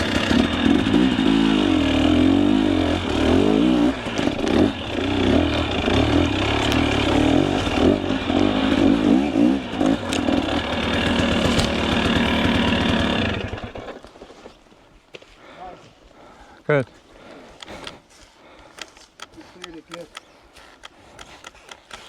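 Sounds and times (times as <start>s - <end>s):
dirt bike engine revving: 0.0s - 14.1s.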